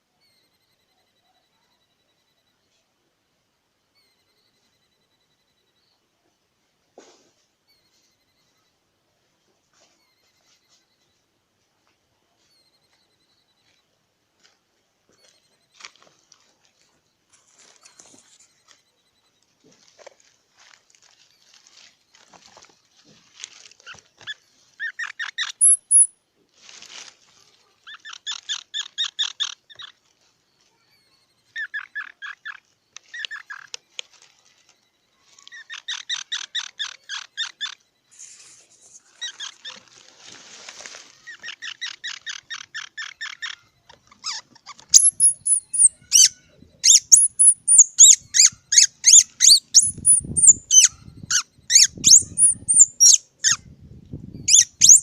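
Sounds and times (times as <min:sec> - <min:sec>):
squirrel squeaky calls: 0:23.5 - 0:26.2, 0:27.8 - 0:40.1, 0:40.8 - 0:55.0
squirrel chirping: 0:23.8 - 0:26.2, 0:27.8 - 0:34.0, 0:34.8 - 0:40.0, 0:41.2 - 0:55.0.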